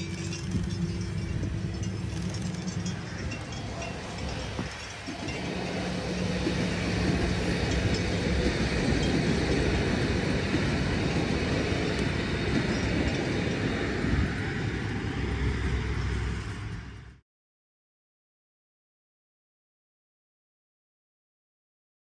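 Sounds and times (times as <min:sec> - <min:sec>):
diesel train engine tone: 0:00.0 - 0:17.2
wheels rumbling on rails: 0:00.0 - 0:17.2.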